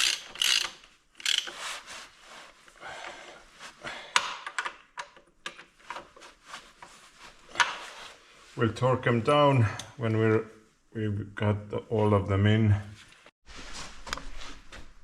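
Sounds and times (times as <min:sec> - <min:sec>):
socket ratchet clicking: 0:00.0 - 0:01.5.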